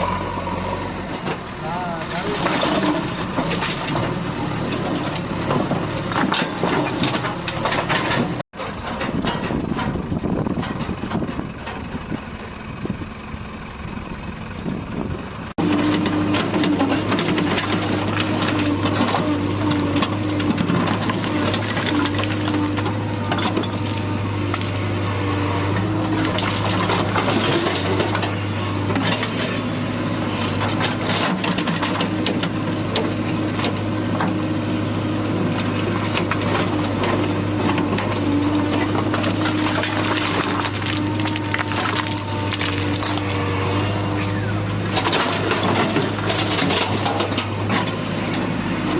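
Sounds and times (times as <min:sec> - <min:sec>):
heavy diesel engine running: 0:00.0 - 0:48.9
clatter and knocks: 0:02.4 - 0:11.9.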